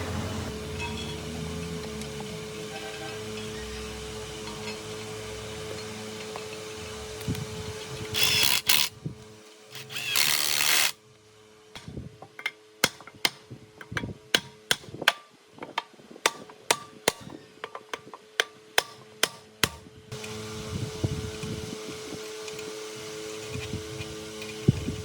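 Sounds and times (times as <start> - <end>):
motor hum: 0.0 - 11.1, 20.1 - 25.0.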